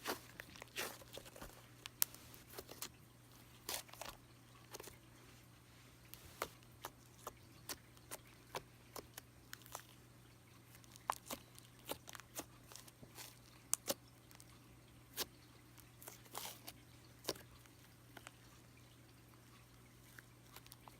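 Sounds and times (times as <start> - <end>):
faint steady hum: 0.0 - 20.9
slime squishing with clicks and pops: 10.7 - 14.5.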